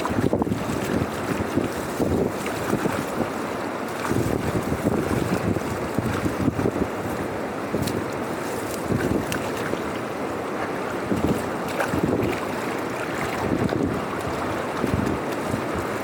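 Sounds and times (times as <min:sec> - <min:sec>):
floodwater rushing through drain: 0:00.0 - 0:16.0.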